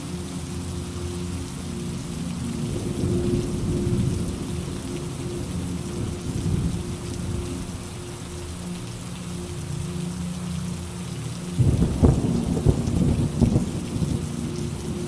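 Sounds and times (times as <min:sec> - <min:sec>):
steady rain hiss: 0:00.0 - 0:15.0
low rolling thunder: 0:02.6 - 0:04.8, 0:05.7 - 0:07.5, 0:11.6 - 0:15.0.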